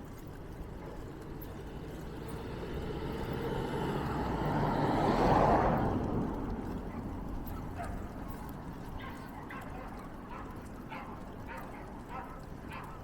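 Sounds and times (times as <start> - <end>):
vehicle passing by: 1.0 - 8.2.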